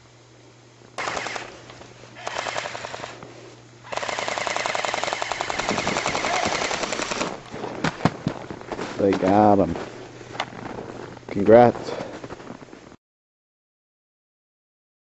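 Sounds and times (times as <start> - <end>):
airsoft guns firing bursts: 1.0 - 1.5, 2.2 - 3.2, 3.9 - 7.4.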